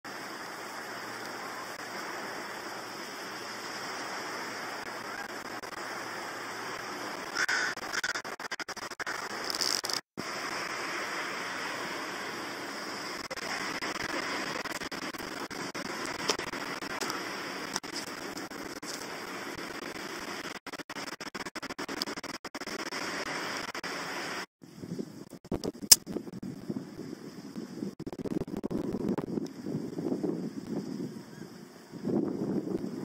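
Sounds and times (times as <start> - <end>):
outdoor background hiss: 0.1 - 33.0
short bird calls: 7.4 - 8.2.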